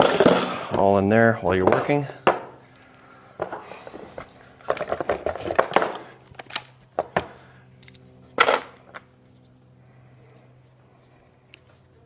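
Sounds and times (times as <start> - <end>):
faint steady hum: 0.0 - 12.0
tools clicking and clattering: 4.2 - 9.1.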